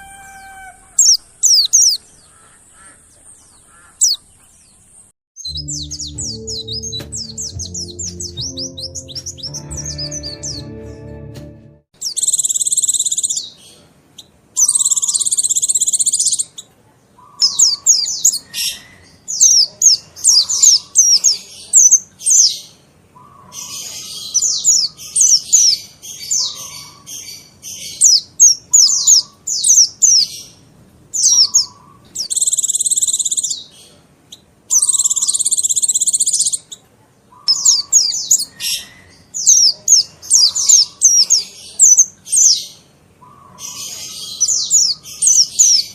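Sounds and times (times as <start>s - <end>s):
high-pitched bird chirps: 5.4s - 10.7s, 12.0s - 13.4s, 14.6s - 16.6s, 31.2s - 33.7s, 34.7s - 42.6s.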